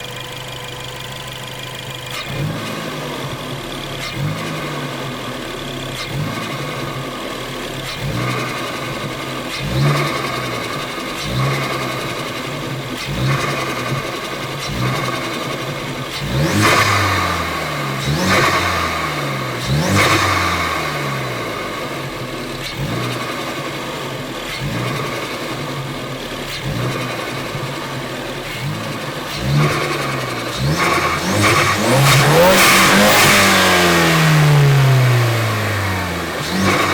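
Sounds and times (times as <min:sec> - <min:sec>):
car engine revving: 0:00.0 - 0:36.9.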